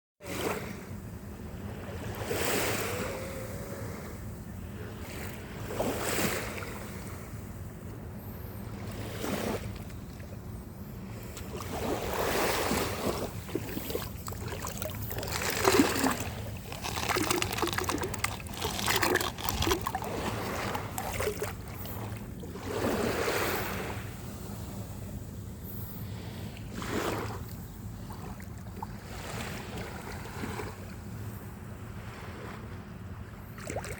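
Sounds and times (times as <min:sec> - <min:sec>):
small waves washing onto beach: 0:00.2 - 0:07.5, 0:08.7 - 0:31.2
steady low hum: 0:00.7 - 0:33.6
surf fizzing and crackling: 0:11.7 - 0:24.9.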